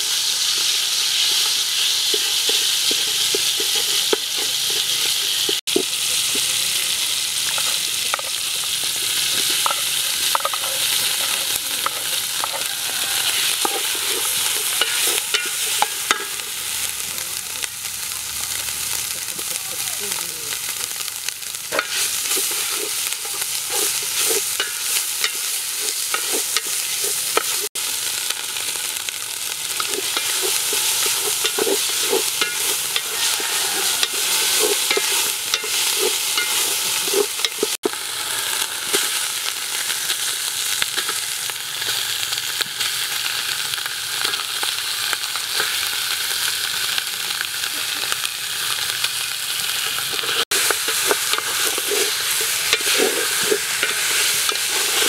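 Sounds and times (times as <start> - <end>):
paste sizzling in hot oil: 0.0 - 55.0
wooden spatula scraping pot: 0.6 - 5.6, 21.7 - 27.7, 29.7 - 37.8, 50.1 - 55.0.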